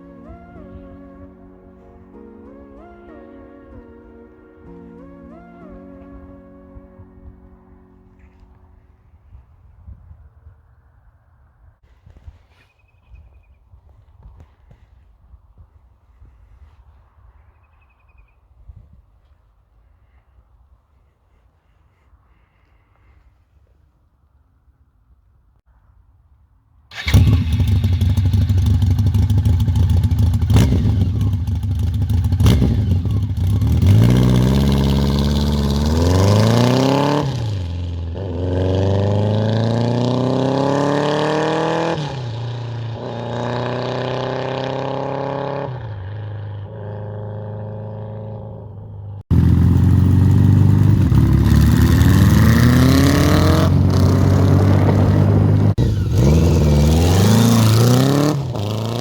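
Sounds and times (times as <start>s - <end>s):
motorcycle engine accelerating: 26.9s - 59.0s.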